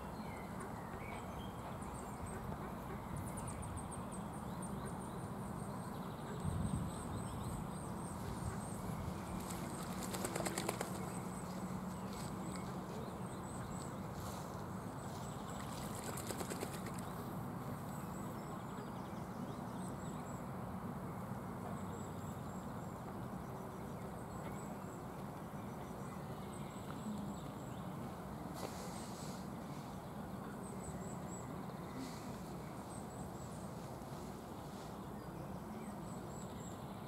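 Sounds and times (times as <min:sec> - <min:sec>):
rapid fluttering: 0:09.4 - 0:11.1, 0:15.8 - 0:17.2.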